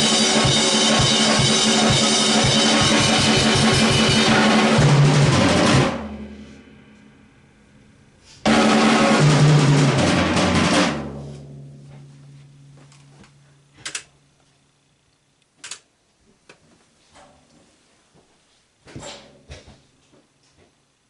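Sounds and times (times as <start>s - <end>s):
drum kit playing fast: 0.0s - 6.8s, 8.4s - 11.7s.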